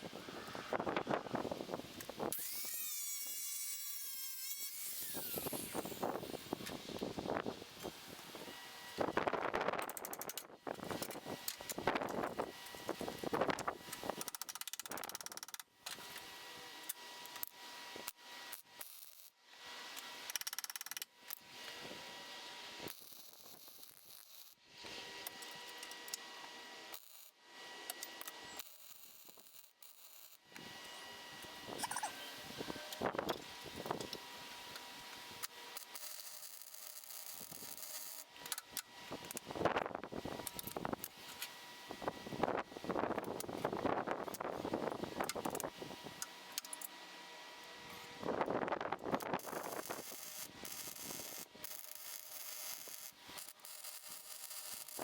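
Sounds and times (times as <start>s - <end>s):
power tool whining: 0.0s - 9.2s, 30.5s - 43.7s
fast run of tool clicks: 9.8s - 12.2s, 13.9s - 15.6s, 20.3s - 21.1s
parts knocking and scraping: 31.7s - 34.2s.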